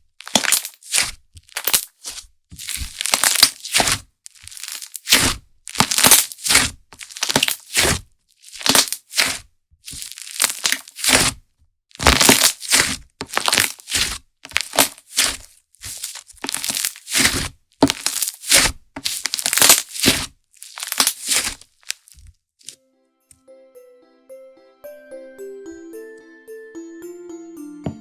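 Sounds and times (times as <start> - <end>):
slime squished with crackling pops: 12.0 - 22.2.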